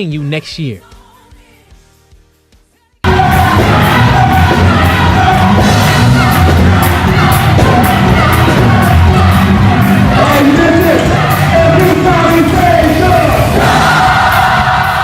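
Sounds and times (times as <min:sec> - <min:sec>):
crowd shouting and whooping: 0:03.0 - 0:15.0
gospel choir singing over band: 0:03.0 - 0:15.0.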